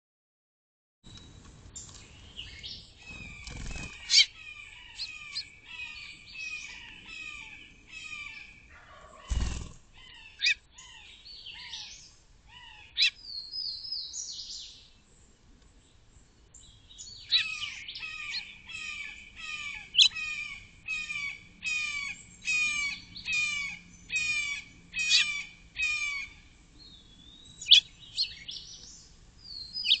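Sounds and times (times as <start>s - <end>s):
small birds chirping: 1.1s - 30.0s.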